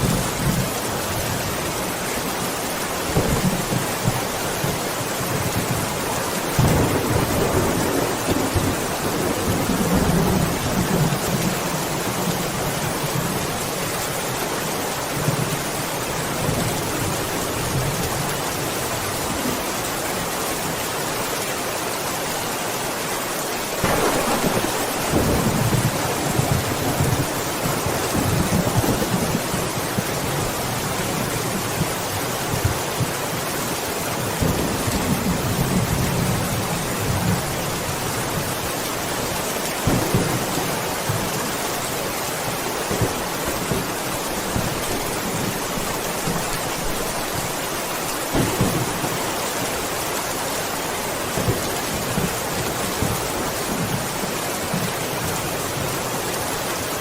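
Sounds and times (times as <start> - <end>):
heavy rain: 0.0 - 57.0
thunder rumbling: 3.1 - 13.6, 23.8 - 32.7, 39.8 - 41.3, 48.2 - 50.0
thunderclap: 6.6 - 11.5, 23.8 - 30.2, 48.3 - 50.0.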